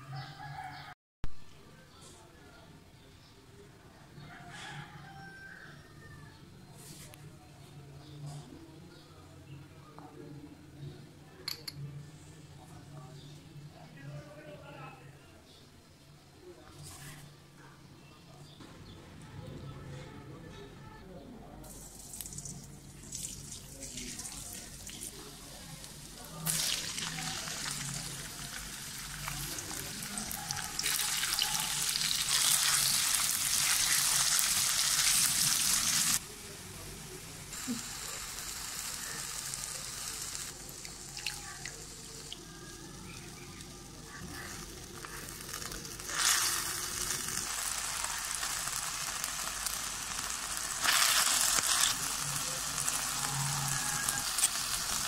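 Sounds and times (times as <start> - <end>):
food sizzling in a wok: 21.7 - 55.0.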